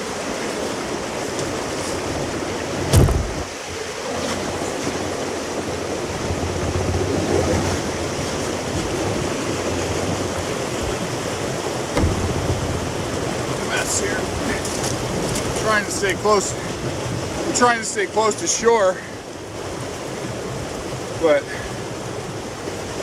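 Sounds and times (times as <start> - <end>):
river rapids rushing: 0.0 - 23.0
loud thump: 2.9 - 3.3, 11.9 - 14.2.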